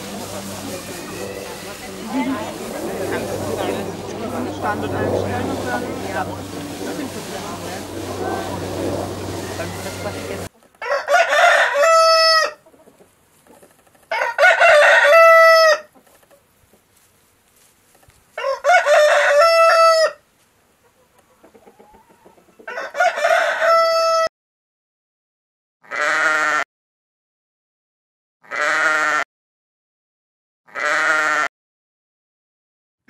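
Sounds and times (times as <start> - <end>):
rooster crowing: 8.2 - 12.6, 14.1 - 15.9, 18.4 - 20.2, 21.8 - 24.3
sheep bleating: 28.5 - 29.2, 30.7 - 31.5.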